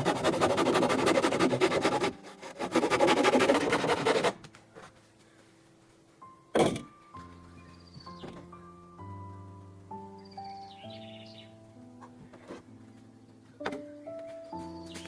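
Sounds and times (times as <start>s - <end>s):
rough scraping on wood: 0.0s - 4.4s.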